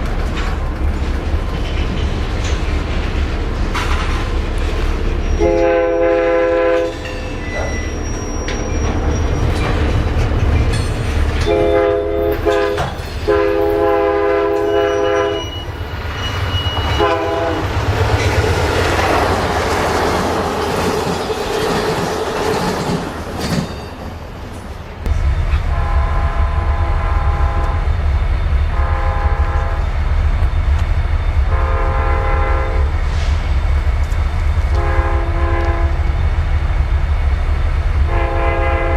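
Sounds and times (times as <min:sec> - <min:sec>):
passing train rumble and clatter: 0:00.0 - 0:38.9
wheel and rail noise: 0:00.0 - 0:38.9
locomotive air horn blasts: 0:05.4 - 0:07.0, 0:11.4 - 0:15.6, 0:16.8 - 0:17.7, 0:25.6 - 0:27.9, 0:28.7 - 0:29.9, 0:31.5 - 0:33.3, 0:34.7 - 0:36.1, 0:38.1 - 0:38.9.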